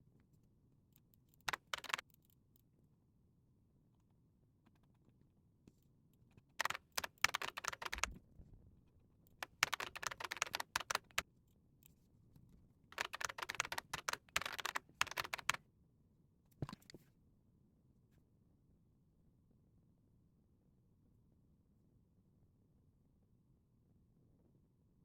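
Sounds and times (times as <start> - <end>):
computer keyboard clicks: 1.4 - 2.0, 6.6 - 8.2, 9.4 - 11.2, 13.0 - 15.6, 16.6 - 17.0.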